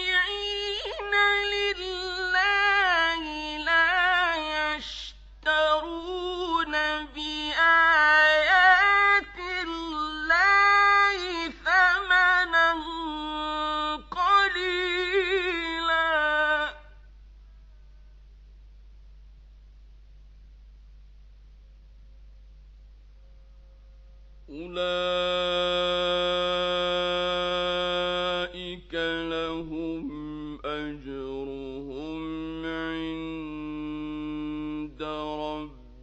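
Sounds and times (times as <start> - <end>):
man chanting recitation: 24.5 - 36.0.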